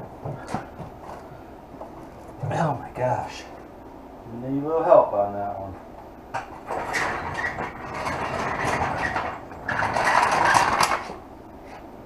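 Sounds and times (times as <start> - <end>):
metal rattling and scraping: 6.4 - 11.2.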